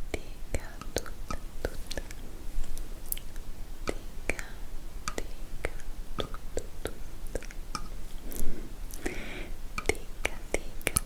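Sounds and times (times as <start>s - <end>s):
wet lip and tongue clicks: 0.8s - 2.2s, 5.1s - 9.2s.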